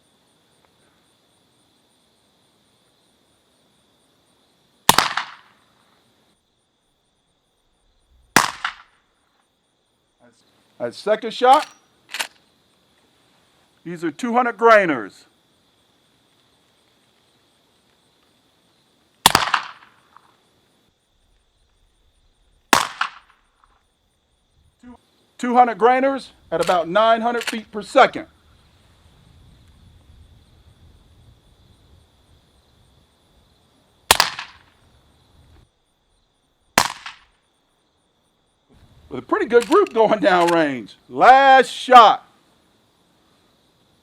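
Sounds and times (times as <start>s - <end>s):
suppressed rifle shot: 4.9s - 5.5s, 8.2s - 9.0s, 19.2s - 20.0s, 22.7s - 23.4s, 34.1s - 34.7s, 36.8s - 37.3s.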